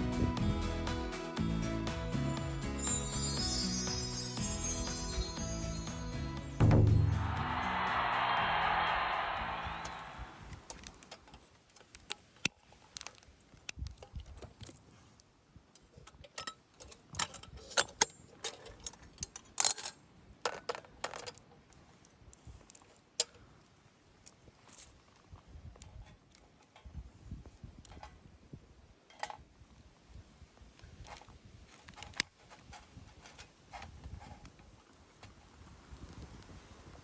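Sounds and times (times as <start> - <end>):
small metal items clinking: 16.3 - 21.5.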